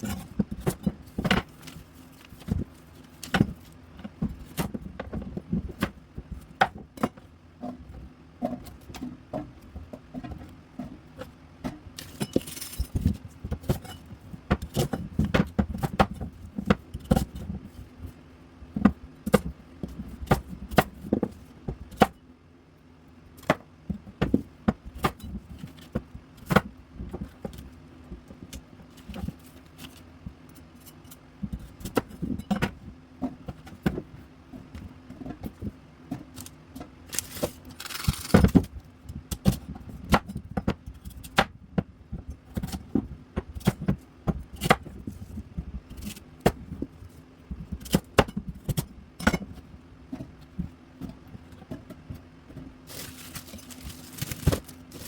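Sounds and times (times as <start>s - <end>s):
vegetable pieces clattering: 37.1s - 38.6s, 52.8s - 55.0s.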